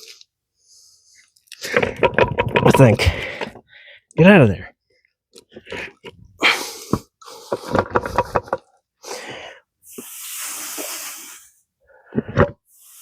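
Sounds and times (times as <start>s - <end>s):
metal parts knocking and clinking: 1.7s - 3.2s
hiss: 9.9s - 11.6s.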